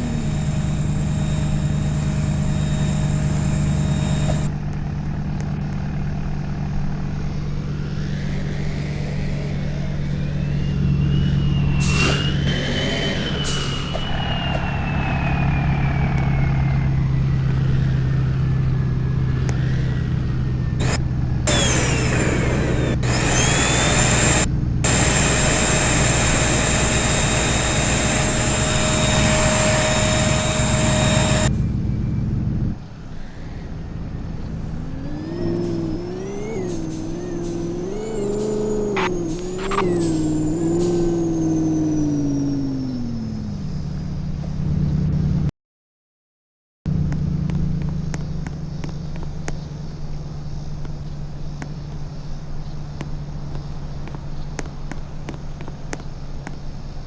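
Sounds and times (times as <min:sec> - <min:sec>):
truck engine drone: 0:00.0 - 0:45.5
high whine falling in pitch: 0:09.8 - 0:17.9, 0:20.8 - 0:31.5.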